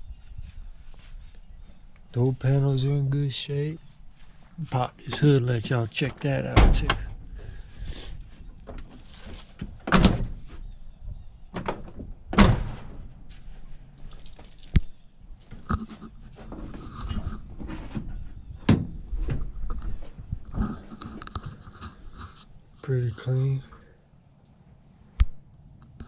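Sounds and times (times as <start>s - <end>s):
metal hood clunks: 6.6s - 7.2s.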